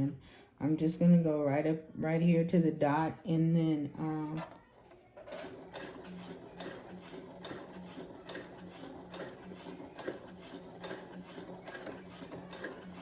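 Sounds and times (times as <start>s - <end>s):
sewing machine motor humming: 4.2s - 13.0s
sewing needle clicking: 5.3s - 13.0s.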